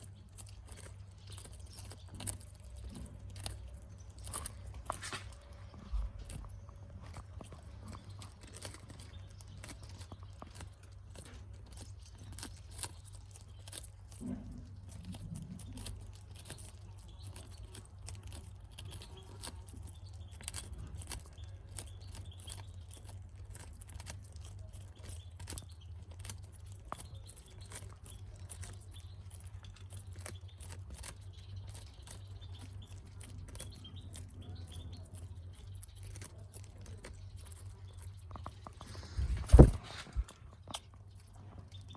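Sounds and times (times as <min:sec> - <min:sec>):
birds pecking at food: 0:00.0 - 0:41.9.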